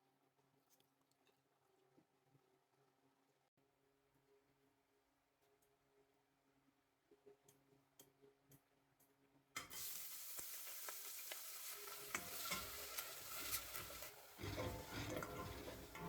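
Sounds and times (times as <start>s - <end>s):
utensil clicking in a pan: 7.5s - 16.0s
food sizzling in a hot pan: 9.6s - 16.0s.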